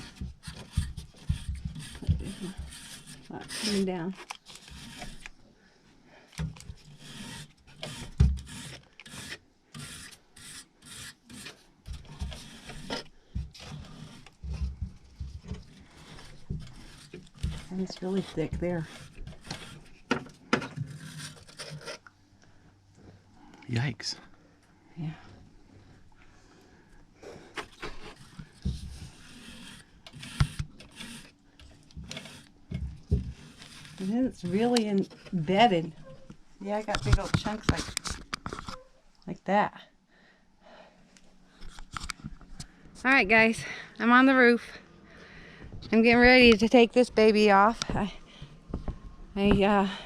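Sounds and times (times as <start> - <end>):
plastic brush scrubbing: 0.0 - 5.3, 6.7 - 20.1, 27.6 - 38.5.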